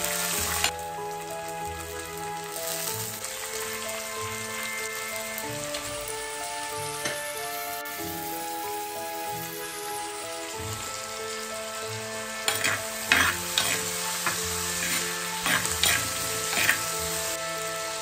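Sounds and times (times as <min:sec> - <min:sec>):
soft background music: 0:00.0 - 0:18.0
vegetables sizzling in oil: 0:00.0 - 0:18.0
steel spoon scraping a pot: 0:12.5 - 0:17.3.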